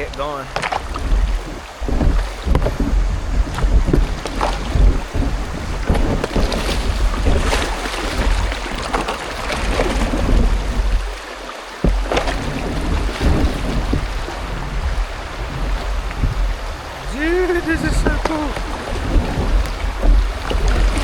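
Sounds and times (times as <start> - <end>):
paddle splashing water: 0.0 - 21.0
wind rumbling on microphone: 0.0 - 21.0.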